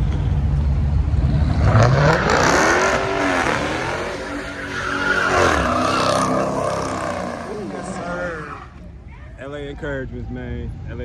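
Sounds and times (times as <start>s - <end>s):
car engine revving hard: 1.2s - 8.5s
tyres screeching: 2.0s - 8.9s.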